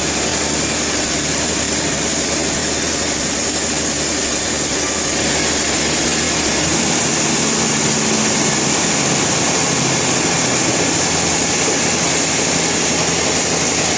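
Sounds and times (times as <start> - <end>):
sawmill hissing: 0.0 - 13.9
low engine hum: 5.2 - 13.9.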